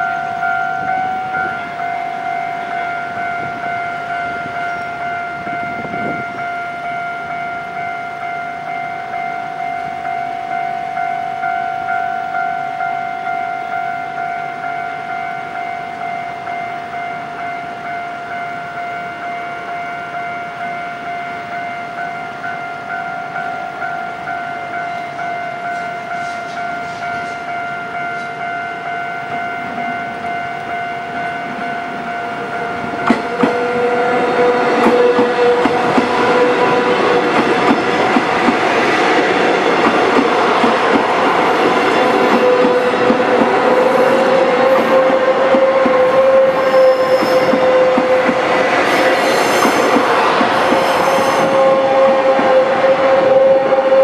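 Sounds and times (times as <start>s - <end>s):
electric train passing: 0.0s - 54.0s
level-crossing warning bell: 0.0s - 54.0s
wheels clacking over rail joints: 32.4s - 52.6s.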